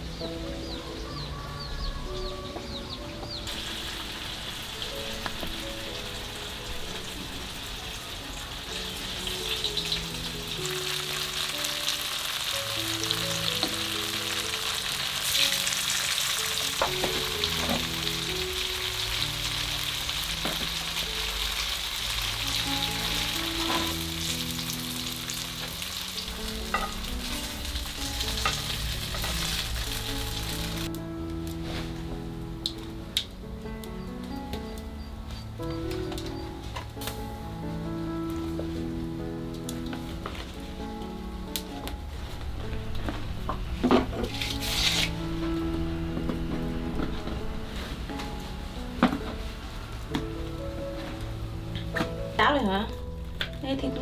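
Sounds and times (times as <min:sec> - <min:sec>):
gentle background music: 0:00.0 - 0:54.0
tofu frying in hot oil: 0:03.5 - 0:30.9.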